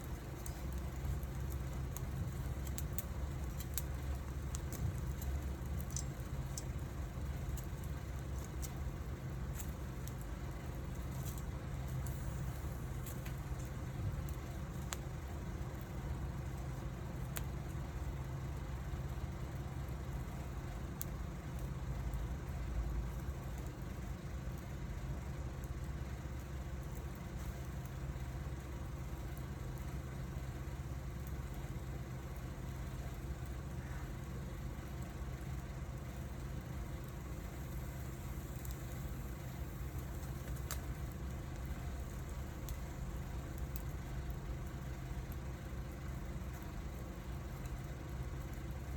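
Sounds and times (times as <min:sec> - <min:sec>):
low fire rumble: 0:00.0 - 0:48.9
wood fire crackling: 0:00.0 - 0:48.9.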